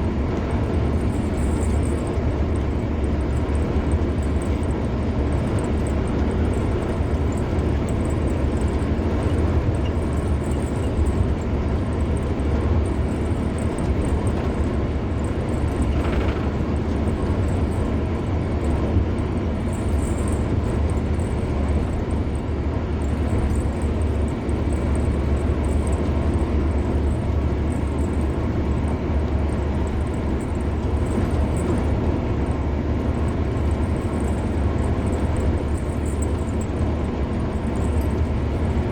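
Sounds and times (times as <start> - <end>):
car driving on highway: 0.0 - 38.9.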